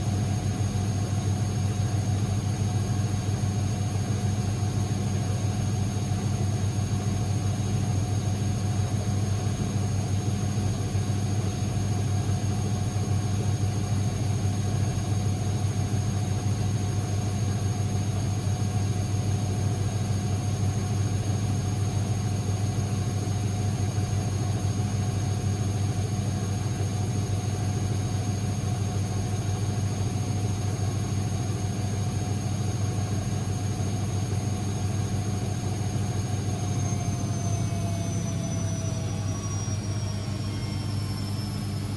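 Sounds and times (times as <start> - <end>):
washing machine motor hum: 0.0 - 41.9
constant whine: 34.3 - 41.9.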